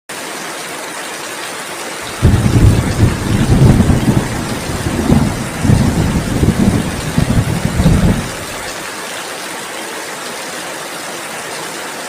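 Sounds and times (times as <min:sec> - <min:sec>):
rain hissing: 0:02.0 - 0:09.0
loud low rumble: 0:02.1 - 0:08.6.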